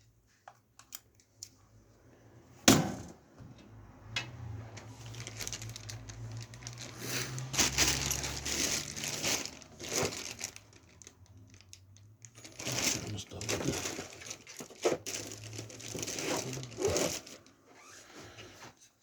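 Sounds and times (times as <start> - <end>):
rustling and crinkling: 4.7 - 19.0.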